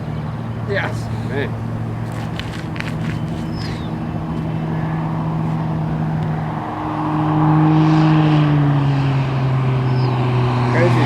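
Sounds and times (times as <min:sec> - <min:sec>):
propeller aircraft engine droning: 0:00.0 - 0:11.0.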